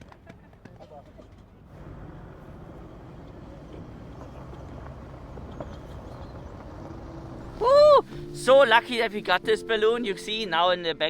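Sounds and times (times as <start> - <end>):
vehicle engine running: 1.7 - 8.3.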